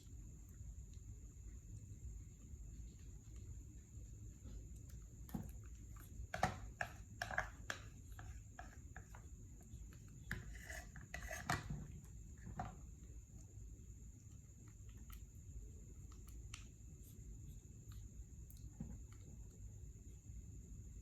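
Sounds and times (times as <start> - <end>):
small objects clicking and tapping: 4.8 - 13.2.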